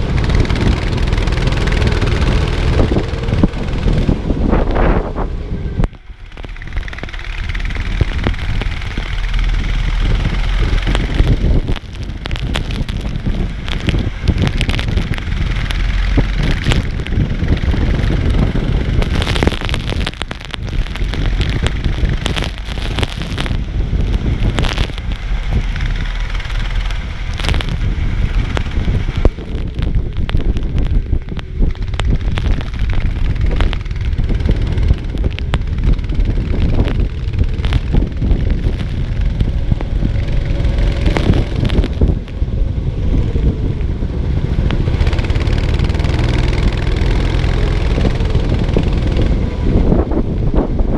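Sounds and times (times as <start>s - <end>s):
go-kart engine: 0.0s - 50.9s
wind buffeting microphone: 0.0s - 50.9s
knocks and rattles: 5.8s - 42.4s.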